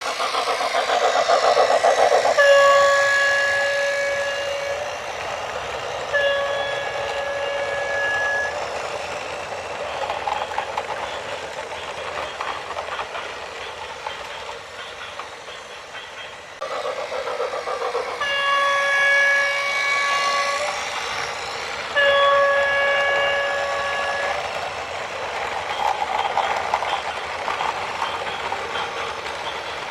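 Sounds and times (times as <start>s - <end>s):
horn blasts: 2.4s - 4.9s, 6.1s - 8.6s, 18.2s - 20.7s, 21.9s - 24.4s.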